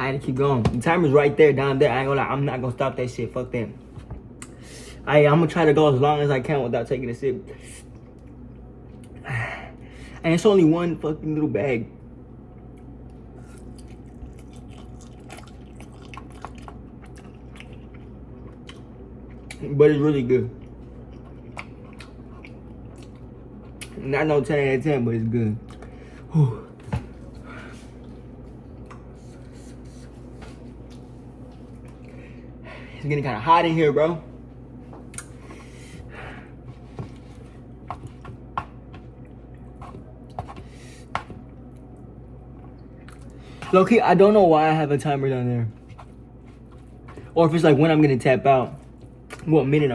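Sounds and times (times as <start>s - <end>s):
low room hum: 0.0s - 49.9s
person chewing noodles: 13.1s - 19.6s, 20.6s - 23.9s, 41.7s - 43.4s.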